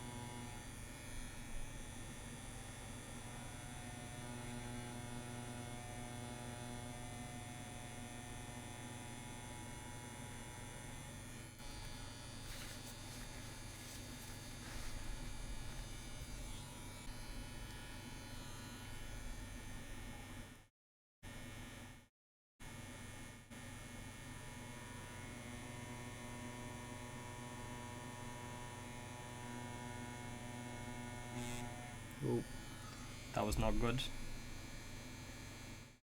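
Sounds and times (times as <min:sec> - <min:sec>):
tattoo machine buzzing: 0:00.0 - 0:20.5, 0:22.6 - 0:36.0.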